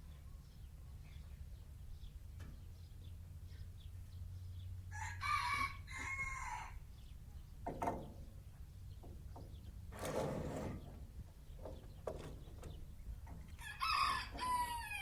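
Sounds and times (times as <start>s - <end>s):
rooster crowing: 4.9s - 6.8s, 13.6s - 15.0s.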